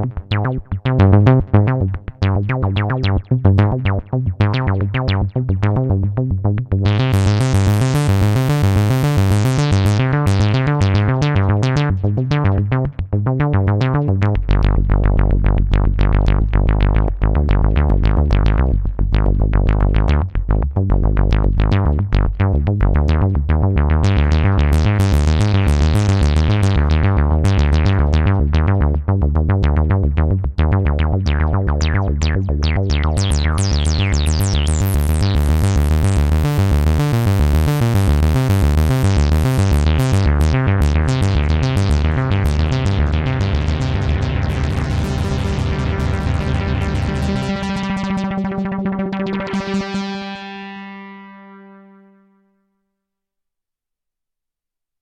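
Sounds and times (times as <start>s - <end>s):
deep sustained bass: 0.0s - 52.0s
pulsing bass: 0.0s - 52.1s
synthesizer rhythmic sequence: 6.8s - 17.2s, 23.8s - 29.1s, 30.9s - 52.2s.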